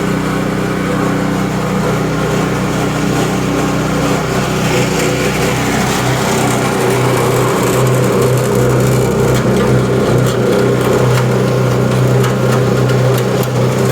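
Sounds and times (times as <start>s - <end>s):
mixing machine humming: 0.0s - 13.9s.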